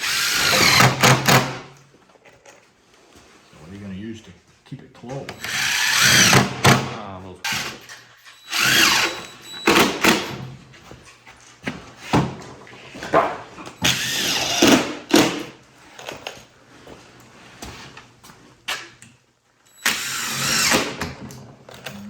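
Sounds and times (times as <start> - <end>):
power drill: 0.0 - 1.6, 5.3 - 10.4, 13.8 - 15.4, 19.8 - 21.2
knocks and handling noises: 9.6 - 13.8.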